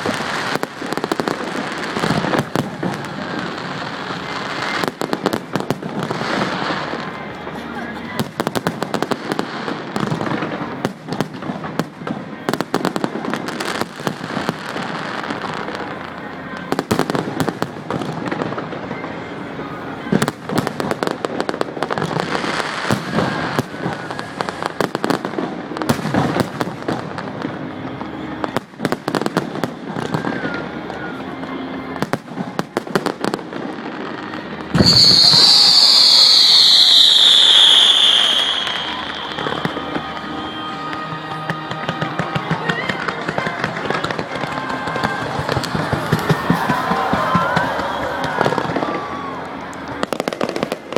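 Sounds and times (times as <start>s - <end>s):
fireworks bangs and crackling: 0.0s - 50.9s
murmur of spectators: 0.0s - 50.9s
loud high whistle: 34.7s - 42.4s.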